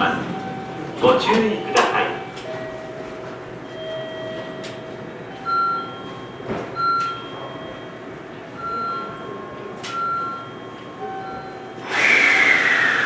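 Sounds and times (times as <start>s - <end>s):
train pulling out: 11.8s - 13.0s.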